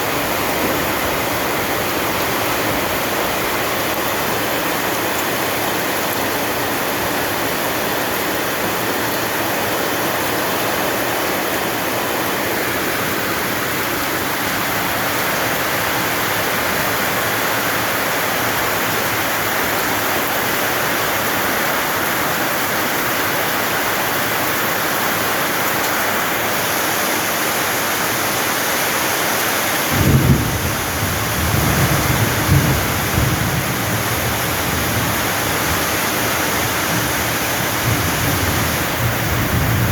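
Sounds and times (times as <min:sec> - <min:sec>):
heavy rain falling: 0:00.0 - 0:39.9
thunder rumbling: 0:29.9 - 0:39.9.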